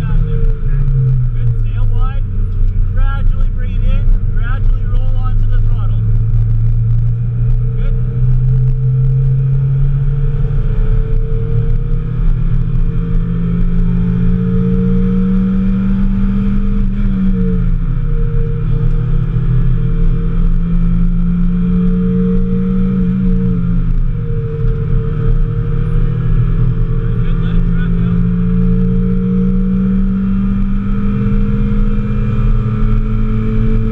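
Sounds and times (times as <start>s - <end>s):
car engine accelerating: 0.0s - 33.9s.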